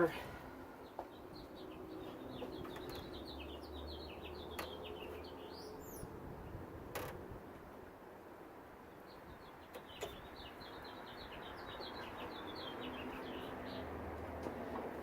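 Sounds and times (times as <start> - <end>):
small bird chirping: 0.8 - 6.6, 9.0 - 13.9.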